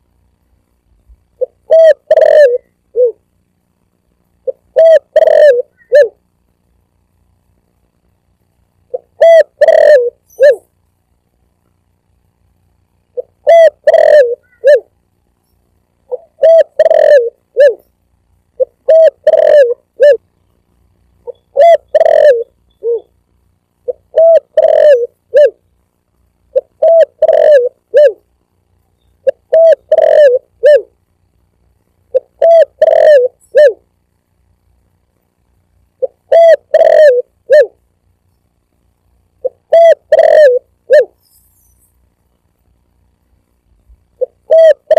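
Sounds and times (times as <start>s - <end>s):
dove cooing: 1.4s - 3.2s, 4.4s - 6.2s, 8.9s - 10.7s, 13.2s - 14.9s, 16.1s - 17.9s, 18.6s - 20.2s, 21.2s - 23.2s, 23.8s - 25.6s, 26.5s - 28.3s, 29.2s - 31.0s, 32.1s - 33.9s, 36.0s - 37.8s, 39.4s - 41.7s, 44.2s - 44.9s.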